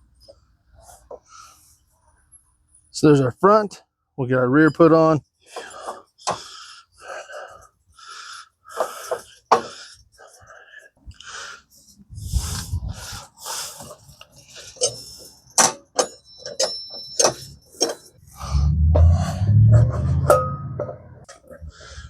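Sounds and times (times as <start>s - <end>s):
metal clinks and knocks: 14.7s - 18.3s, 19.0s - 21.6s
ringing metal clanks: 15.6s - 18.2s, 19.0s - 21.3s.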